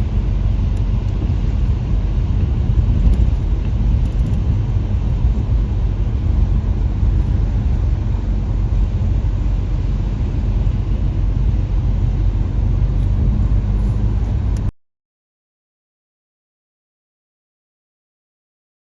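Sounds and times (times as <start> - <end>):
car engine and road rumble: 0.0 - 14.7.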